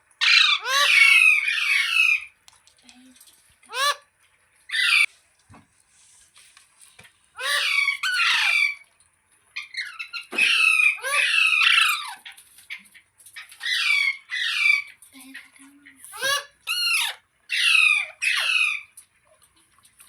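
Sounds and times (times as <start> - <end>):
parrot screeching: 0.2 - 2.3, 3.7 - 4.0, 4.7 - 5.1, 7.4 - 8.8, 9.6 - 12.3, 13.6 - 15.0, 16.1 - 18.9.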